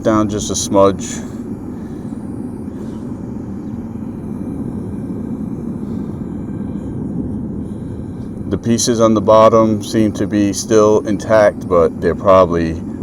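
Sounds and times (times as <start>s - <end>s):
furnace burner flame rushing: 0.0s - 13.0s.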